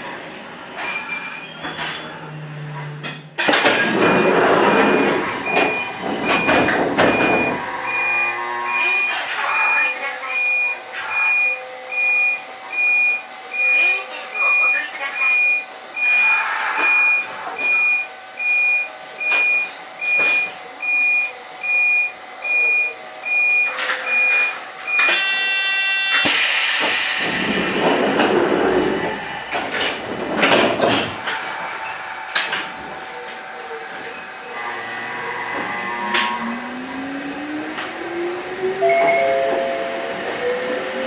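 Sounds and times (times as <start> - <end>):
train rumbling: 0.0 - 21.8, 23.0 - 41.0
electronic beeping: 4.2 - 16.2
short buzzer tone: 5.0 - 9.3.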